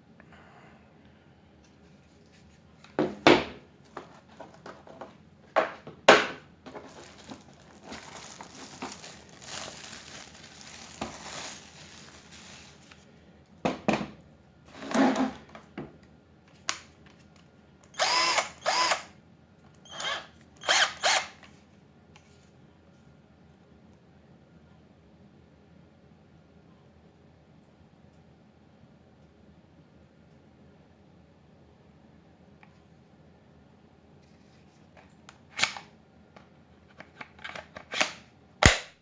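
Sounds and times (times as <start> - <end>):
cordless drill whirring: 17.9 - 19.1, 19.9 - 21.4.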